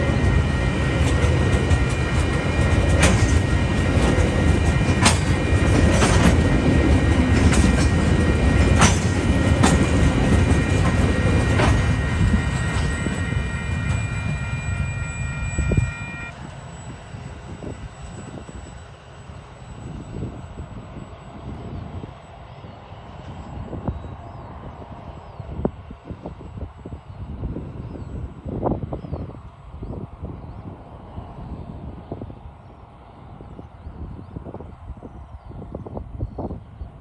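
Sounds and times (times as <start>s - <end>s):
wheels clacking on rail joints: 0.0s - 12.9s
train rumbling past: 0.0s - 37.0s.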